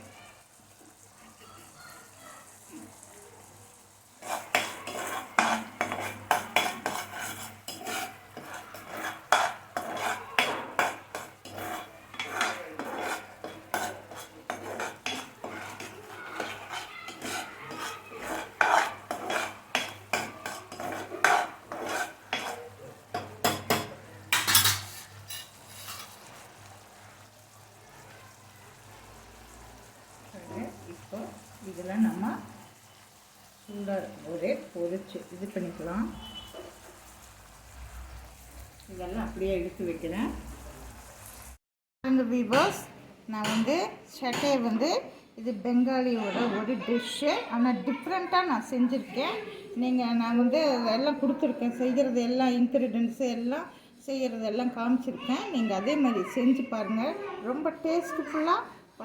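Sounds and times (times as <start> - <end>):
spoon scraping a dish: 4.2 - 26.6, 35.8 - 37.1.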